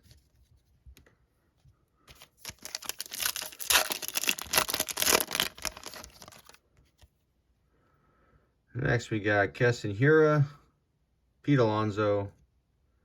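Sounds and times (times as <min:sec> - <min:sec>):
foil pack tearing and crinkling: 0:02.1 - 0:06.6.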